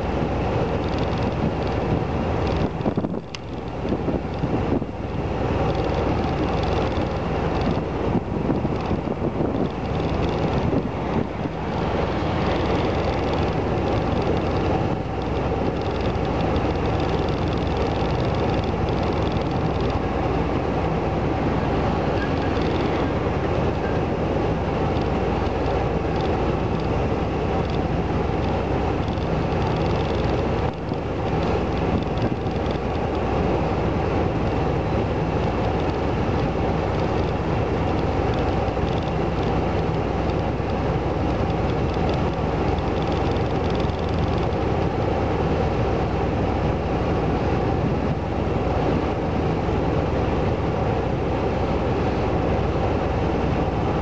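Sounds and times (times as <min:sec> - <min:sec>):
vehicle running rumble and hiss: 0:00.0 - 0:54.0.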